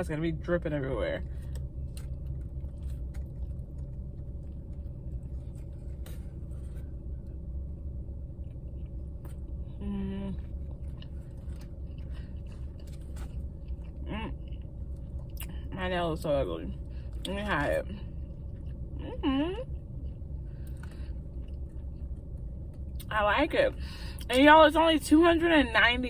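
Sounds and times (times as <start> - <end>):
low rumble: 0.0 - 26.0
person chewing a sandwich: 1.2 - 15.7, 16.8 - 19.0, 19.8 - 23.1
person humming: 9.8 - 10.4.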